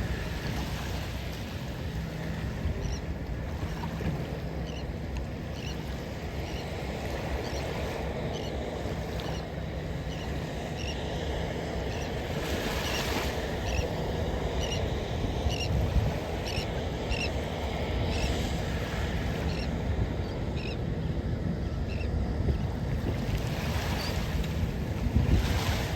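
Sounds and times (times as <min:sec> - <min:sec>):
surf washing onto beach: 0:10.5 - 0:25.9
wind buffeting microphone: 0:12.0 - 0:25.9.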